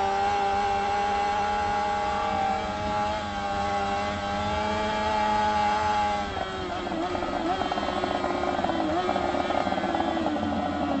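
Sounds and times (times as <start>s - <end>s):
motorcycle engine at high revs: 0.0s - 11.0s.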